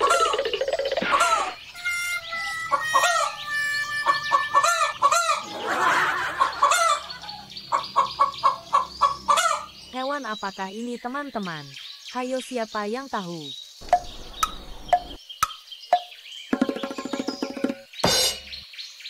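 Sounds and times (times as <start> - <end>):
chicken clucking: 4.1 - 9.7.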